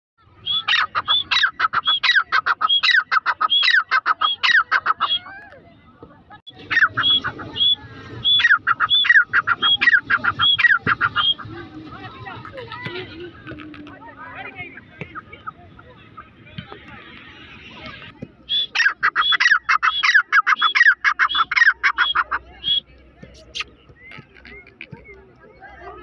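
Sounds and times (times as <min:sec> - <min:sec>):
francolin calling: 0:00.4 - 0:05.3, 0:06.5 - 0:11.5, 0:18.5 - 0:22.8.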